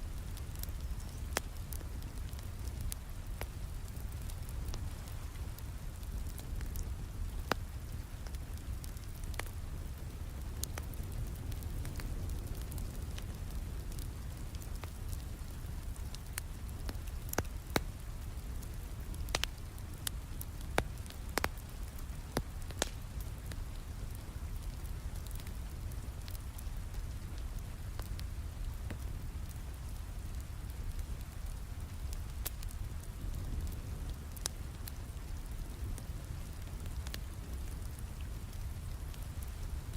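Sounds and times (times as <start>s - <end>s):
steady rain: 0.0s - 39.9s
wood fire crackling: 0.0s - 39.9s.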